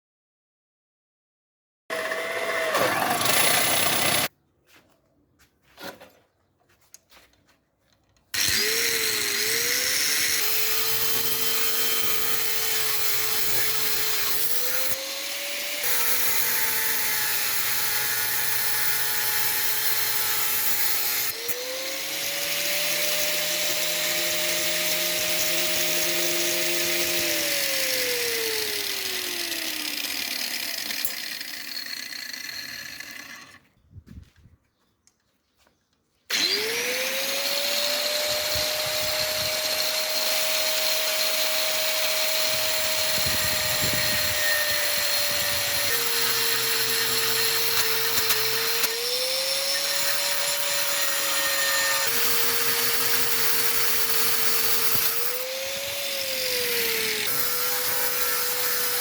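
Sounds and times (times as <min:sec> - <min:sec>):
power tool motor running: 0:01.9 - 0:04.3, 0:08.4 - 0:33.7, 0:36.3 - 0:59.0.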